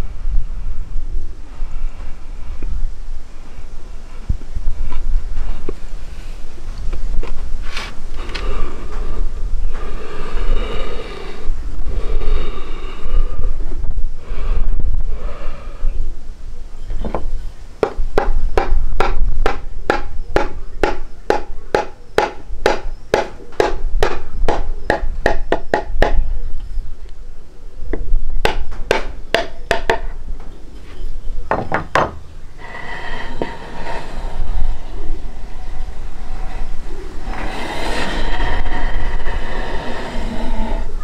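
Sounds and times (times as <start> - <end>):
rapid sharp knocks: 17.8 - 26.2, 28.4 - 30.0
low rumble: 32.3 - 41.0.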